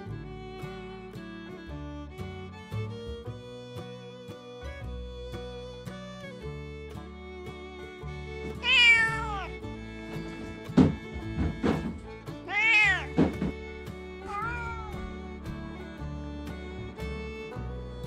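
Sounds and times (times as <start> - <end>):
background music: 0.0 - 18.0
sharp knocks: 8.5 - 17.3
cat meowing: 8.6 - 9.6, 12.4 - 13.6, 14.2 - 15.3.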